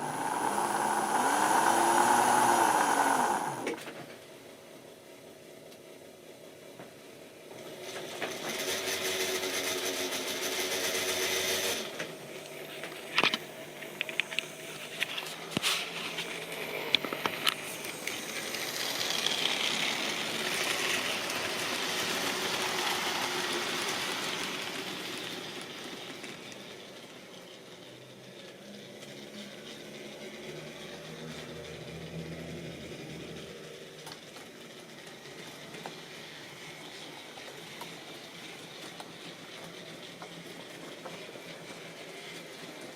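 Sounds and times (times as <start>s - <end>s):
model train motor hum: 0.0s - 3.9s, 7.8s - 42.9s
train wheels clicking on rails: 6.8s - 42.9s.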